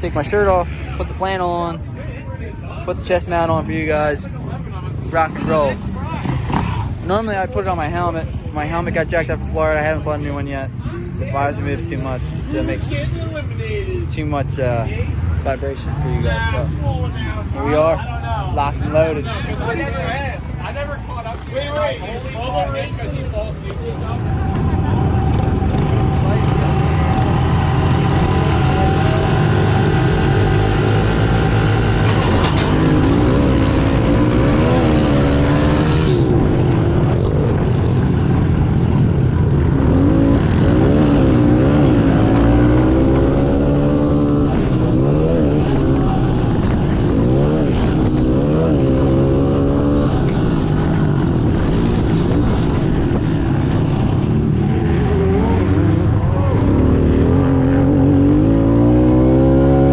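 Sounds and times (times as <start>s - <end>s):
motorbike engine revving: 5.1s - 7.4s, 18.8s - 59.9s.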